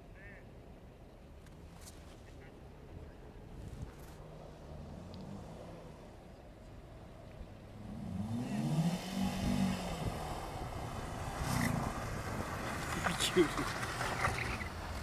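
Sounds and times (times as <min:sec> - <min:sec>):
car engine revving: 0:07.7 - 0:15.0.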